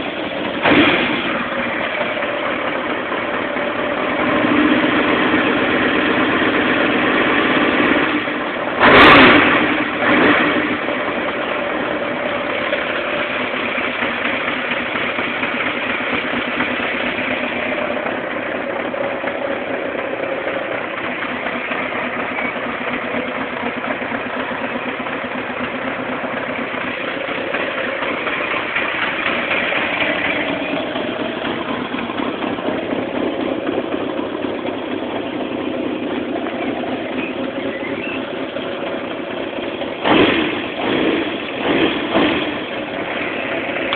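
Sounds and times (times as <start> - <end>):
motorcycle engine idling: 0.0 - 43.9
loud engine bursts: 8.8 - 10.9, 39.9 - 43.8.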